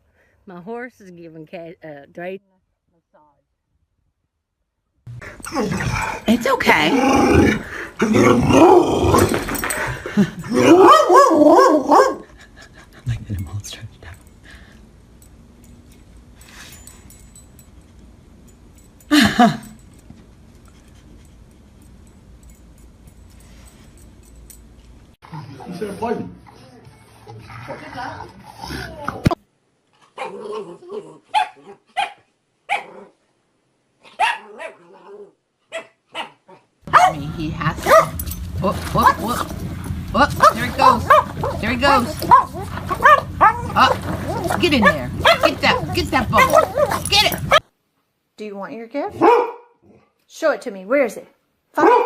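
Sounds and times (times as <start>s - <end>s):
dog growl-howling: 5.2s - 9.8s, 10.4s - 12.0s, 40.3s - 47.6s
dog barking: 10.6s - 12.3s, 30.2s - 30.5s, 31.3s - 33.1s, 34.1s - 37.2s, 37.8s - 38.3s, 40.4s - 47.6s, 49.1s - 49.8s, 51.8s - 52.0s
dog drawn-out vocal sound: 39.0s - 47.6s.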